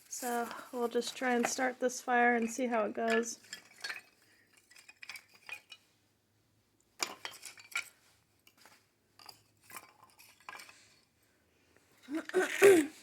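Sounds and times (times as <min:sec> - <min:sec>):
kindling clinking and rustling: 0:00.0 - 0:05.9, 0:07.0 - 0:11.1.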